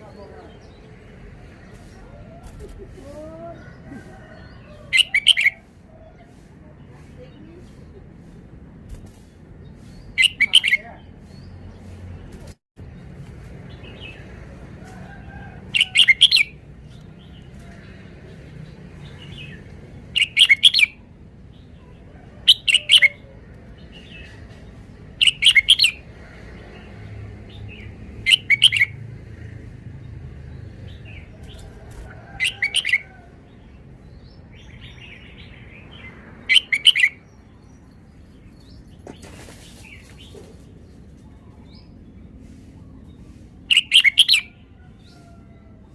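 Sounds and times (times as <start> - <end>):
bird singing loud phrases: 3.4 - 6.4, 9.2 - 12.3, 15.7 - 17.6, 18.3 - 26.1, 26.8 - 29.1, 29.9 - 45.2.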